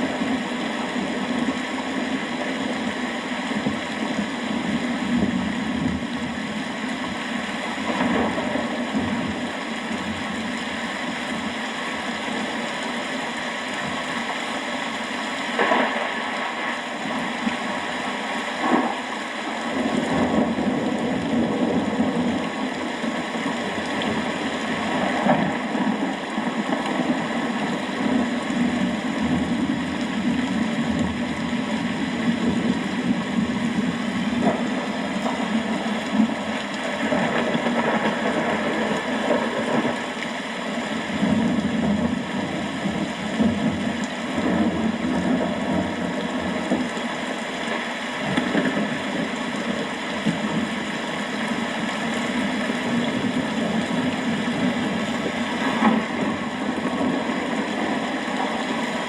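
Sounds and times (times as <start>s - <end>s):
low rumble of thunder: 0.0s - 10.4s, 19.6s - 40.1s, 41.1s - 47.0s
steady rain hiss: 0.0s - 59.0s.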